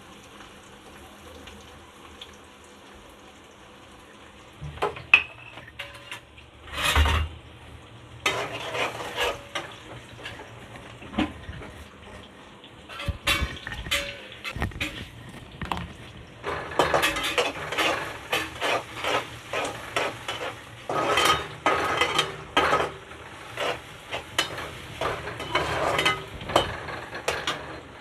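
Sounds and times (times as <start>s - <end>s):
food sizzling: 0.0s - 28.0s
spoon scraping a pan: 4.8s - 7.3s, 8.2s - 11.8s, 12.9s - 15.1s, 16.4s - 28.0s.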